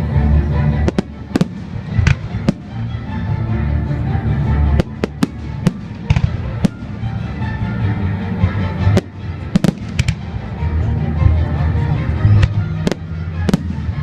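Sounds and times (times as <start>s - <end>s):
music: 0.0s - 14.0s
fireworks bangs: 4.8s - 7.3s, 9.0s - 10.4s, 12.4s - 14.0s.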